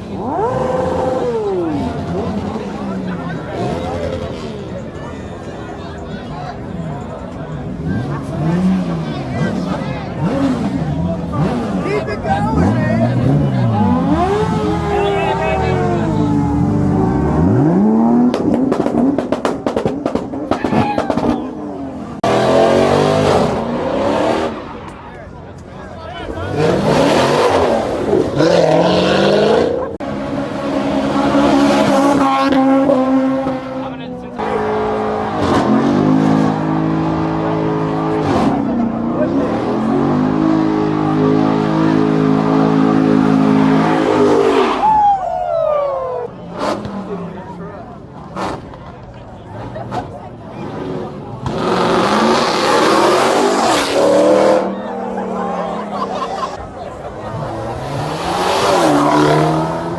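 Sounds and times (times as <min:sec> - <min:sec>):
car engine revving: 0:07.6 - 0:44.9, 0:46.4 - 0:59.9
loud engine revving: 0:07.7 - 0:24.8, 0:26.3 - 0:44.8, 0:46.5 - 0:47.2, 0:49.5 - 0:59.9.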